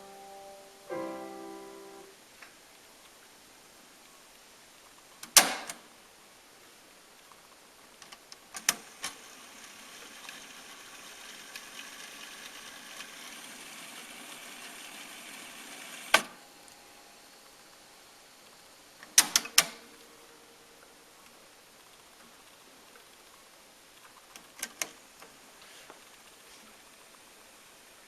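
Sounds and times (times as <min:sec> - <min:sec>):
tape winding whir: 0:09.0 - 0:16.4.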